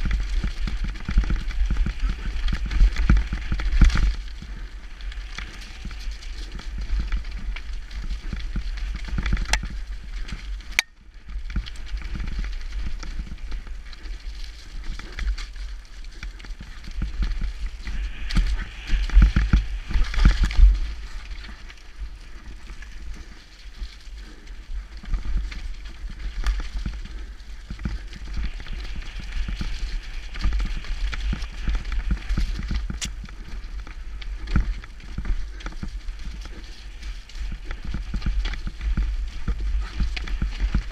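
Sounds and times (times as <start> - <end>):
bike tyres over dirt and rocks: 0.0 - 40.9
wind rumble on microphone: 0.0 - 40.9.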